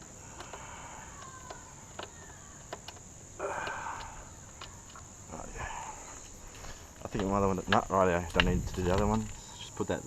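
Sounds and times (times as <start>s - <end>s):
sharp clicks: 0.0s - 5.1s
crickets chirring: 0.0s - 10.0s.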